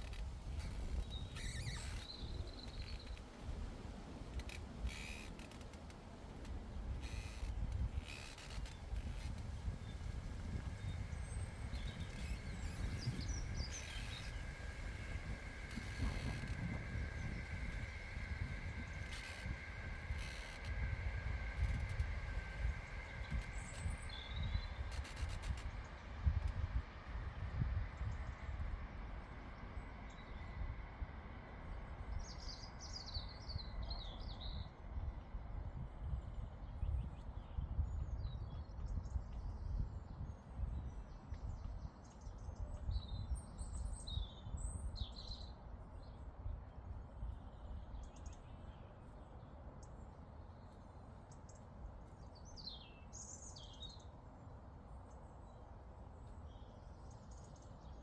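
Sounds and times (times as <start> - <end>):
wind on microphone: 8.7 - 28.8.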